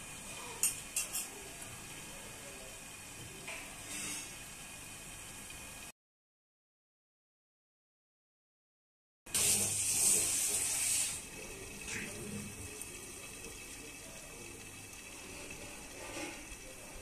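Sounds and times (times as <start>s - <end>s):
meat sizzling in a frying pan: 0.0s - 5.9s, 9.3s - 17.0s.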